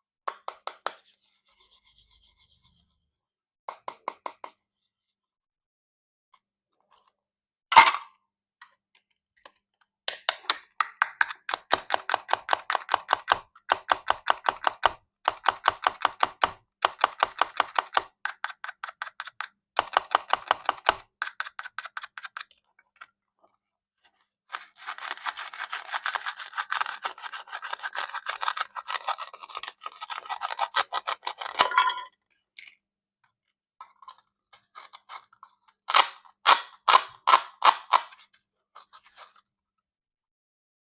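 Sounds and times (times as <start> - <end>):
plastic knife cutting toy fruit: 10.3 - 22.6, 24.5 - 31.6, 33.9 - 39.3.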